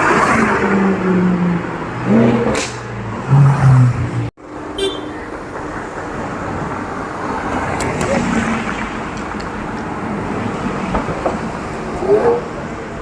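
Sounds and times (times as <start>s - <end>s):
car horn honks: 4.8s - 5.2s.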